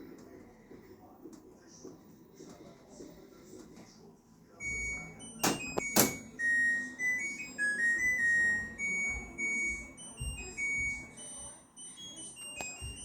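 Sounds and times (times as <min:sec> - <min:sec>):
washing machine beeper melody: 0:04.6 - 0:13.0.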